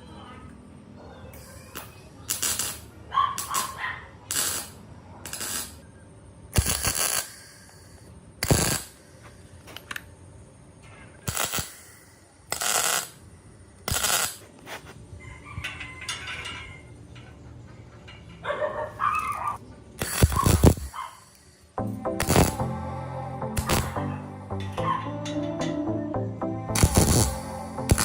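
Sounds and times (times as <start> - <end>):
metal clanking: 15.5 - 20.9, 23.6 - 26.1.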